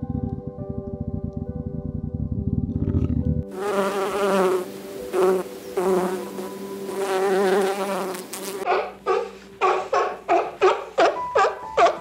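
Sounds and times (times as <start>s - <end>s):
flying insect buzzing: 3.5s - 8.7s
sea lion barking: 8.7s - 12.0s.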